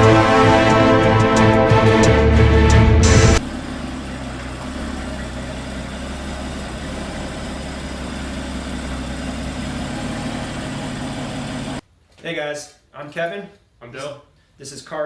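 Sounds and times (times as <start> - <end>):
car engine idling: 2.0 - 11.8.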